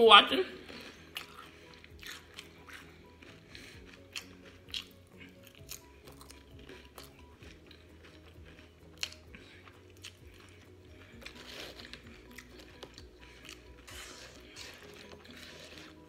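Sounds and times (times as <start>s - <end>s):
soft background music: 0.0s - 16.0s
wet chewing: 0.6s - 16.0s
chips crunching: 0.7s - 16.0s.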